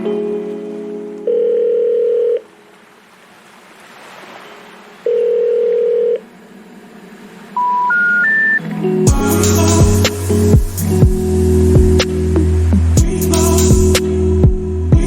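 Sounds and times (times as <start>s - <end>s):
telephone ringing tone: 1.2s - 2.5s, 5.1s - 6.2s
faint hiss: 8.7s - 14.4s.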